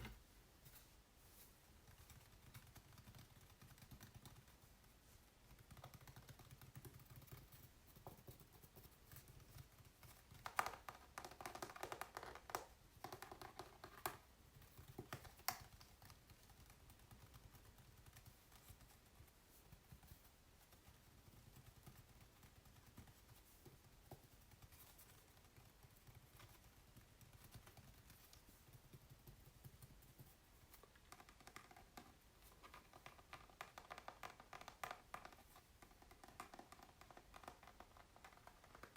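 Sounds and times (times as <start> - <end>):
fingers tapping on canvas: 5.5 - 19.1, 20.8 - 38.9.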